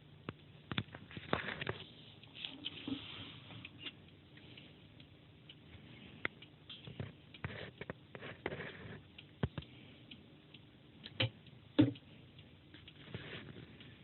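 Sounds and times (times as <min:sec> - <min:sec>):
turntable clicks pops and crackle: 0:00.2 - 0:02.8, 0:06.2 - 0:09.8, 0:10.5 - 0:12.1.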